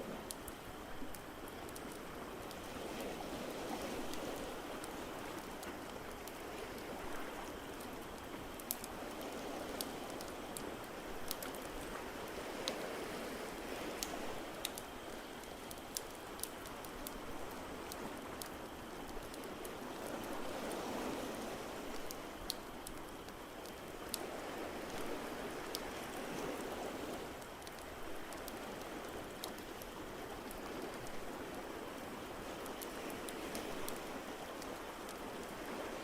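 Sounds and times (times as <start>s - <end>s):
ocean waves washing ashore: 0.0s - 36.0s
wood fire crackling: 0.2s - 19.8s.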